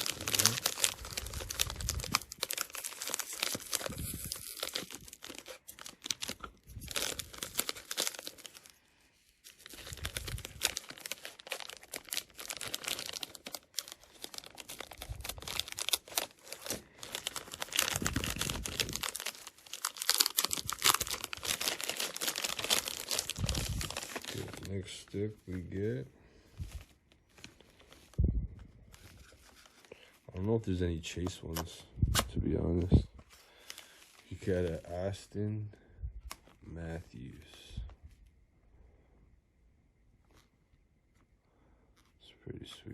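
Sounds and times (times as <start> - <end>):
cardboard pack crinkling and tearing: 0.0 - 30.6.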